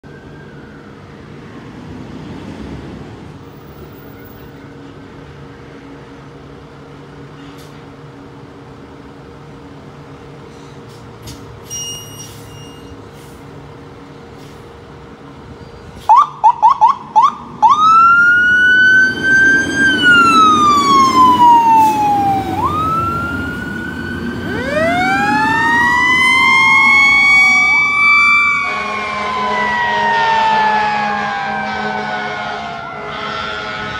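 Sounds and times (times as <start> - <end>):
low vehicle rumble: 13.0 - 33.6
second siren winding up: 16.1 - 28.8
siren chirps: 16.1 - 33.9
siren wailing: 16.1 - 33.9.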